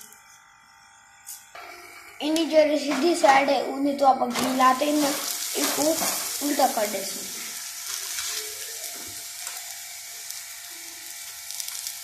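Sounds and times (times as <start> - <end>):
flatbread sizzling on hot pan: 4.4 - 12.0.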